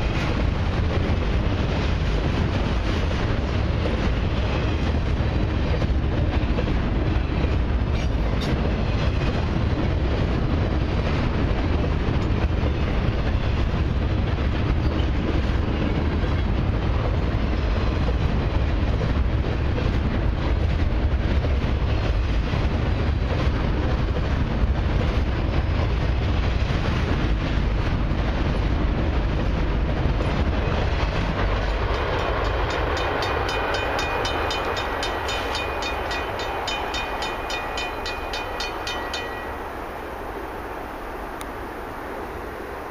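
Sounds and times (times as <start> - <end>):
freight cars rumbling over rails: 0.0 - 42.9
level-crossing bell ringing: 32.0 - 39.9.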